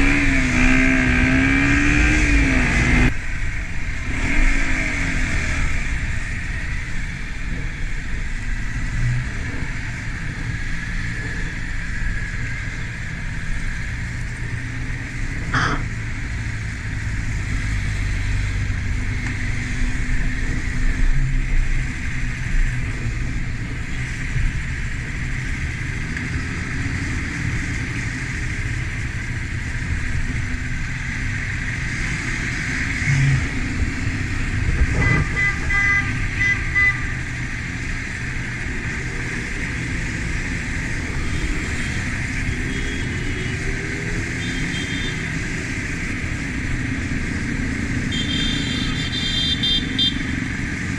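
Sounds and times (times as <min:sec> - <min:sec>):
wind rush on microphone: 0:32.8 - 0:36.4
horn beeping: 0:34.9 - 0:37.2, 0:48.1 - 0:50.3.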